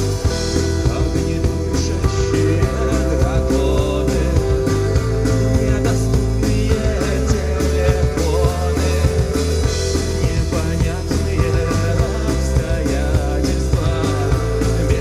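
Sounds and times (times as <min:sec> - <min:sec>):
drum beat: 0:00.0 - 0:15.0
low bass notes: 0:00.0 - 0:15.0
rock band playing live: 0:00.0 - 0:15.0.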